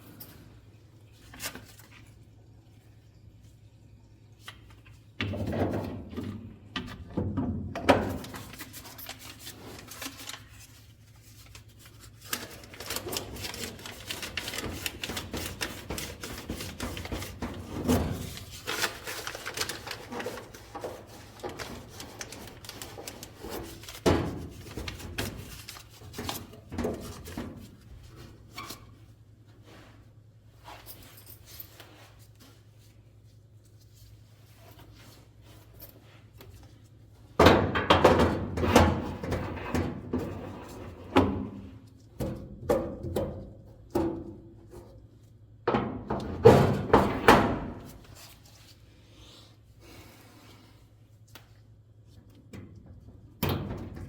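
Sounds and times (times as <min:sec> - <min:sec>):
objects clattering and knocking: 0:12.3 - 0:28.4.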